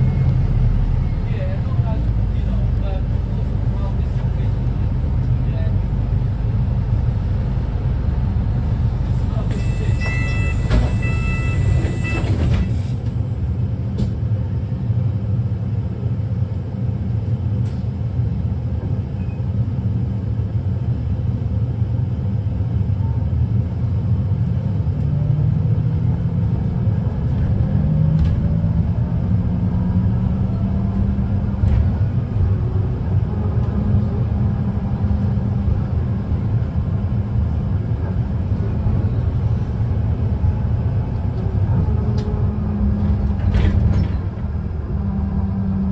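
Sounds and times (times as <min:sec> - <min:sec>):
bus engine rumble: 0:00.0 - 0:45.9.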